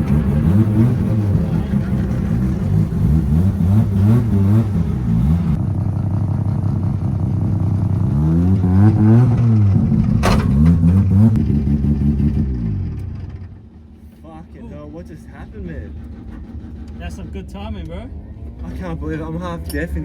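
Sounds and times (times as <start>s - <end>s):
car engine revving hard: 0.0s - 5.6s, 7.5s - 13.0s
sharp crack: 9.2s - 11.5s.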